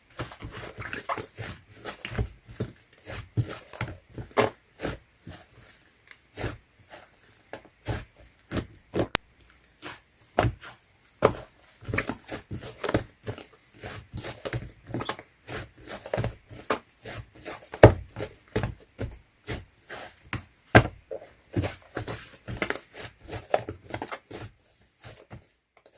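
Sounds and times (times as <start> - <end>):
slime squelching: 0.1 - 25.3.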